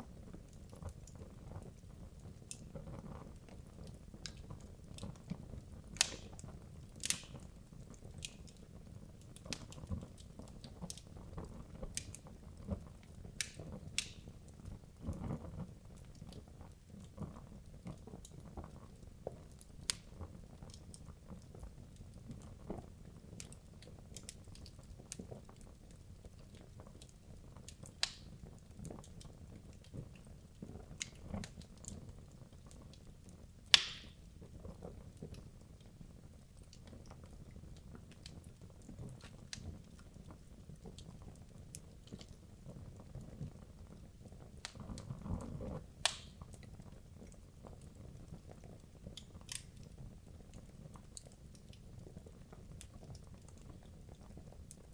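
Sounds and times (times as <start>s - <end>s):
fire crackling and snapping: 0.0s - 54.9s
loud fire pops: 5.9s - 8.4s, 13.4s - 14.3s, 33.7s - 34.3s, 44.5s - 46.6s.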